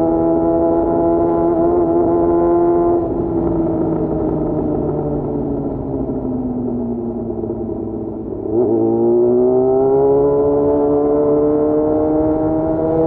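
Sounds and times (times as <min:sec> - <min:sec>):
motorcycle engine revving: 0:07.2 - 0:13.0.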